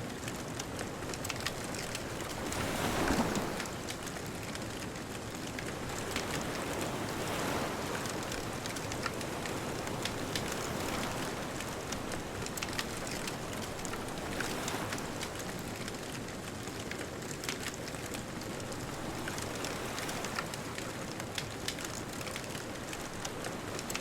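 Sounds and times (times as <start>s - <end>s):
bonfire crackling and popping: 0.0s - 2.8s, 3.4s - 24.0s
distant ocean waves: 5.8s - 16.6s.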